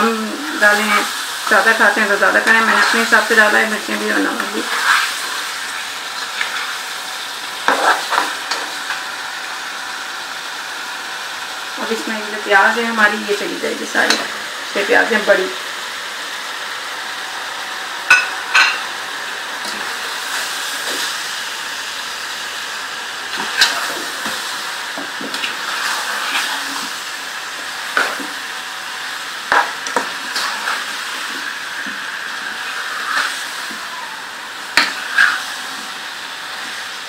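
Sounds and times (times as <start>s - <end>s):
chicken and onions sizzling in pan: 0.0s - 37.0s
spatula knocking and scraping pan: 7.6s - 8.7s.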